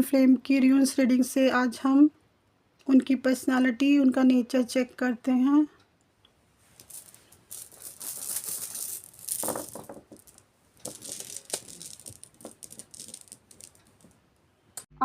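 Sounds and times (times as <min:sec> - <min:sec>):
rune pieces rattling and clicking: 0:06.8 - 0:14.3.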